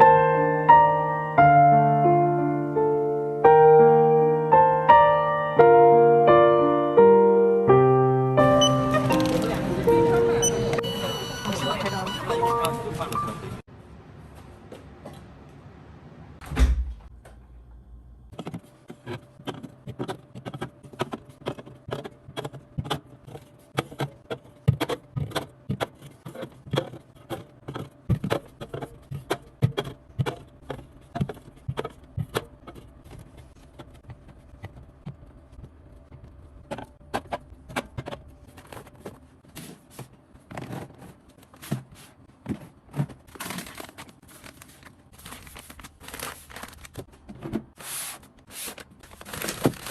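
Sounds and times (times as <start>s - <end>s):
packages knocking and clinking: 36.2s - 47.8s, 48.8s - 49.9s.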